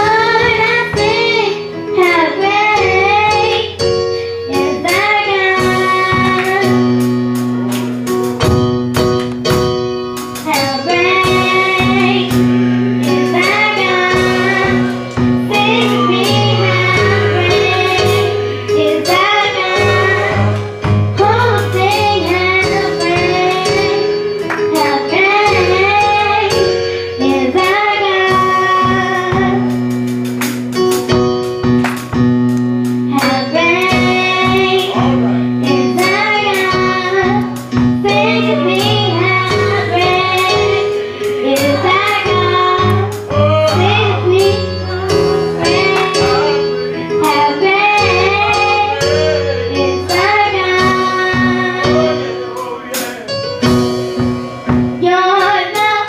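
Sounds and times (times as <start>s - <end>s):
low accompaniment notes: 0.0s - 56.0s
percussive beat: 5.6s - 25.1s, 28.4s - 47.5s
choir singing gospel: 10.5s - 26.6s, 33.1s - 53.4s.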